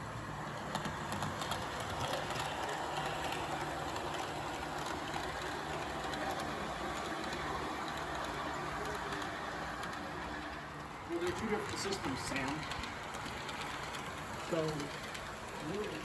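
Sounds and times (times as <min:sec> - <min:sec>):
model train rolling rumble: 0:00.0 - 0:16.0.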